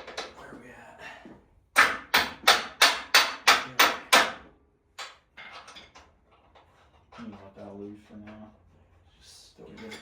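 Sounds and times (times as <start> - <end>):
hammer striking metal: 1.8 - 4.4.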